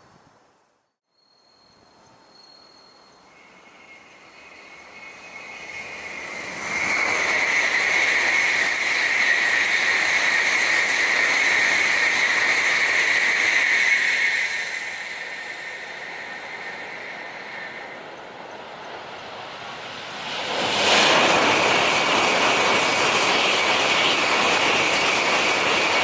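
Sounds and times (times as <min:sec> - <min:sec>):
bullet train passing at speed: 0:01.2 - 0:26.0.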